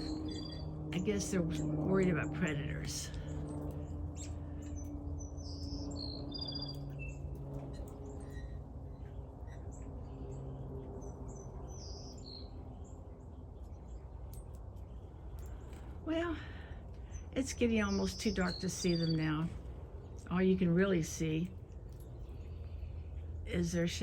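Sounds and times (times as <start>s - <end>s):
low steady hum: 0.0s - 24.0s
high bird chirps: 4.2s - 14.1s.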